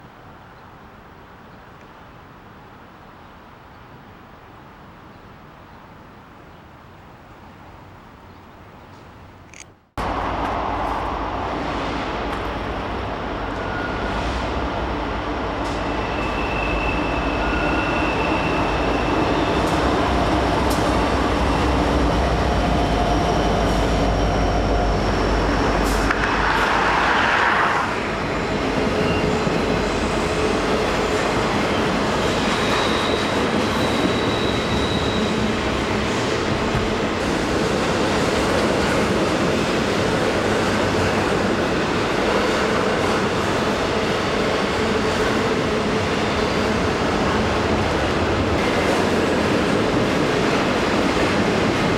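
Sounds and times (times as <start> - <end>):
train wheels rumbling on rail: 10.0 - 51.9
high wheel squeals: 15.8 - 20.1, 28.2 - 31.1, 31.7 - 35.7.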